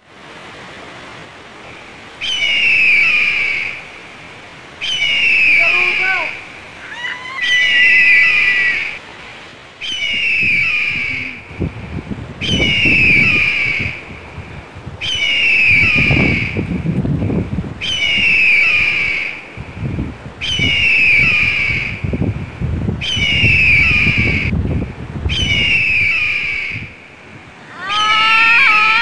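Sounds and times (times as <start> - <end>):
high falling whistle calls: 1.7 - 4.0, 4.8 - 9.0, 9.8 - 11.8, 12.4 - 14.1, 15.0 - 16.7, 17.8 - 19.4, 20.4 - 22.0, 23.0 - 24.5, 25.3 - 27.0, 27.7 - 29.0.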